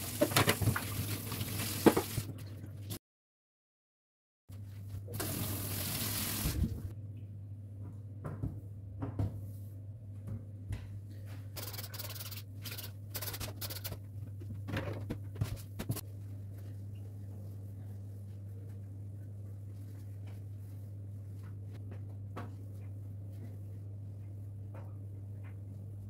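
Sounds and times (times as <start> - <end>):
tap running: 11.6 - 16.0.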